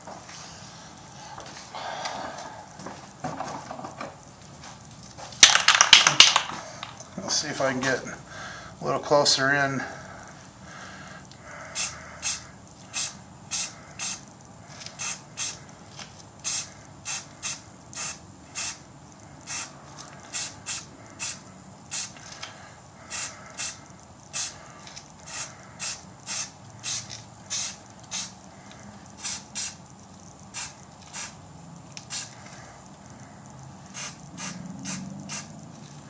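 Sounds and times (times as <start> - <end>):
spray can hissing bursts: 11.8 - 14.3, 15.0 - 15.6, 16.4 - 18.8, 19.5 - 19.7, 20.3 - 22.2, 23.1 - 24.6, 25.2 - 28.4, 29.2 - 29.8, 30.5 - 31.4, 32.0 - 32.4, 33.9 - 35.6.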